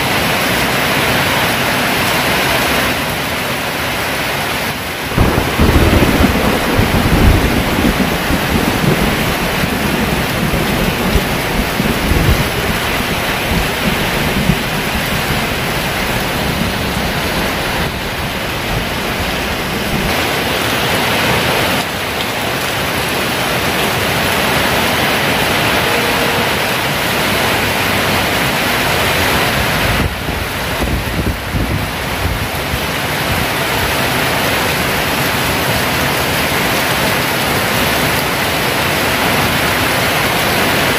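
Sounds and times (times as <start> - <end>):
heavy rain downpour: 0.0 - 40.9
low rumbling thunder: 5.1 - 21.1, 29.4 - 32.8.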